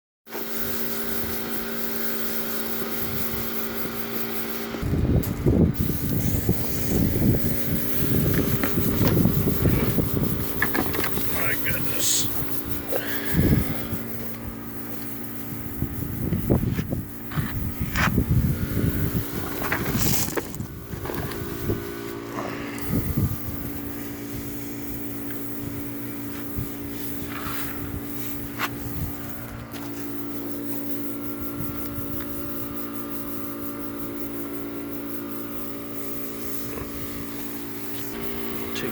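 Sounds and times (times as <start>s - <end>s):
steady mechanical hum: 0.3s - 38.9s
wind buffeting microphone: 4.8s - 10.6s, 15.5s - 21.9s, 22.8s - 24.6s.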